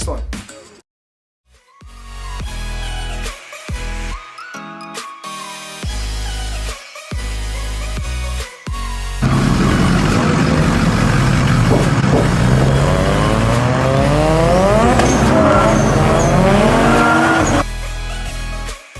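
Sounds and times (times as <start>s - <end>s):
car engine accelerating hard: 9.2s - 17.6s.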